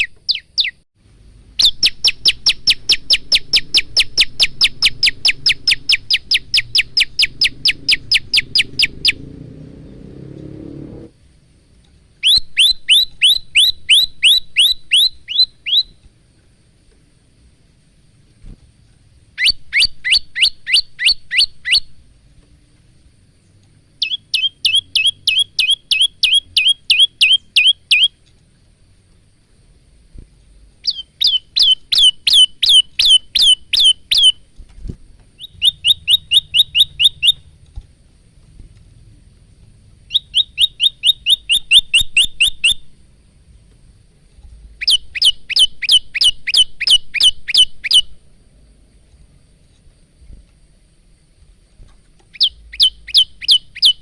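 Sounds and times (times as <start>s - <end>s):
bird singing high sweeping notes: 1.6s - 11.1s, 12.2s - 16.0s, 24.0s - 28.2s, 30.8s - 34.4s, 35.4s - 37.6s, 40.1s - 43.0s, 52.4s - 54.0s.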